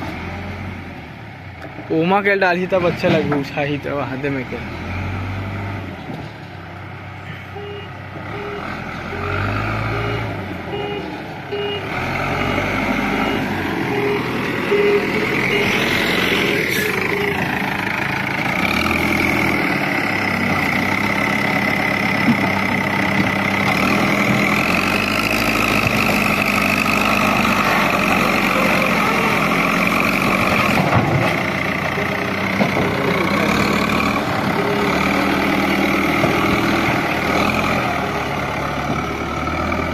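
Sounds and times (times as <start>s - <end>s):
diesel engine running: 0.0s - 39.9s
reversing alarm beeping: 7.6s - 17.5s.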